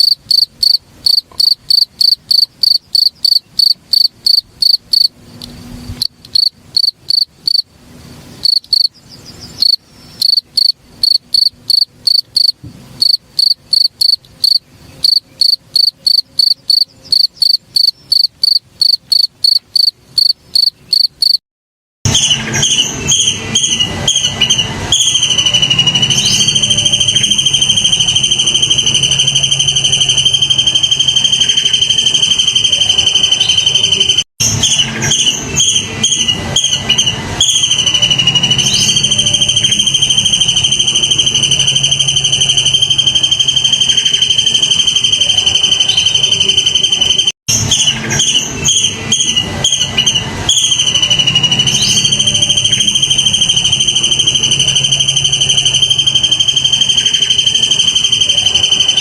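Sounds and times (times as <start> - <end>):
shrill insect trill: 0.0 - 5.1, 6.3 - 7.7, 8.4 - 8.9, 9.6 - 21.4, 25.0 - 34.2, 37.4 - 47.3, 50.5 - 59.0
stuttering rapid insect chirps: 0.0 - 7.7, 8.4 - 8.9, 9.6 - 21.4.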